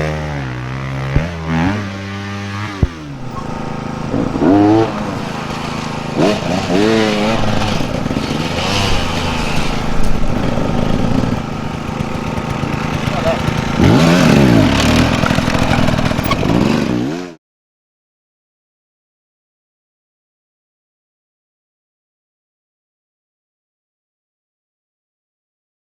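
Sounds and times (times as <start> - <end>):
dirt bike engines revving: 0.0 - 17.4.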